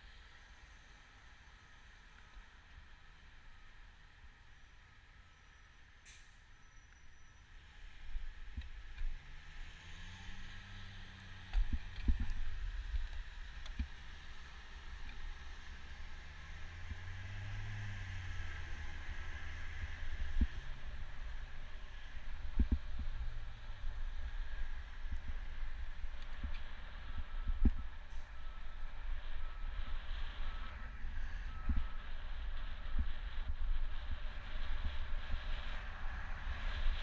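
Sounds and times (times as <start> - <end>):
bicycle road rumble: 0.0 - 37.0
low engine hum: 0.0 - 37.0
wind buffeting microphone: 11.6 - 13.9, 18.8 - 37.0.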